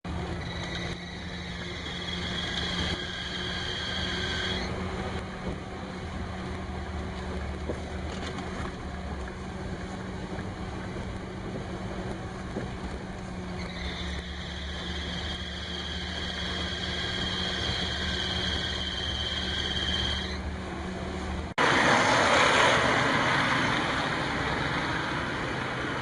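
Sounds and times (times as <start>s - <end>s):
drive belt squealing: 0.1s - 5.6s, 10.9s - 20.6s
car engine idling: 0.1s - 21.8s.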